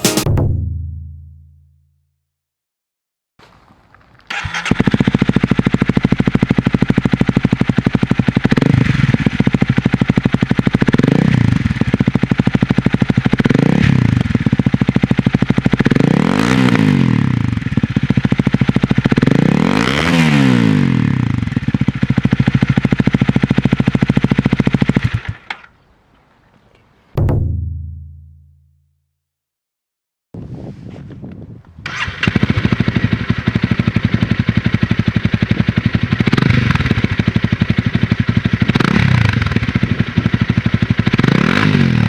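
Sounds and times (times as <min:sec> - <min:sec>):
motorcycle engine idling and revving: 0:04.2 - 0:25.8, 0:31.8 - 0:42.0.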